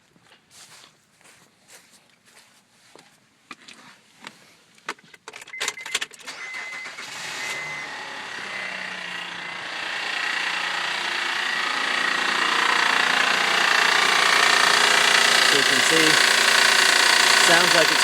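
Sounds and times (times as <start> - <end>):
engine cranking and starting: 5.2 - 18.0
hissing whirring engine noise: 6.6 - 18.0.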